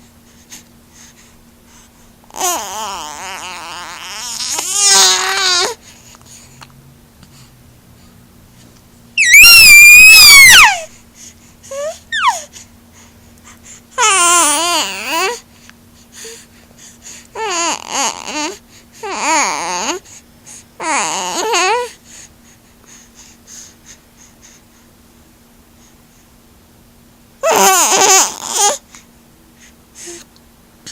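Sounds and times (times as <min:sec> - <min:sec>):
faint steady hum: 0:00.0 - 0:30.9
baby fussing and babbling: 0:02.3 - 0:05.9, 0:11.7 - 0:12.6, 0:14.0 - 0:15.4, 0:17.4 - 0:20.0, 0:20.8 - 0:22.0, 0:27.4 - 0:28.8
baby squealing: 0:02.5 - 0:05.8, 0:09.2 - 0:10.9, 0:11.8 - 0:12.5, 0:27.4 - 0:28.8.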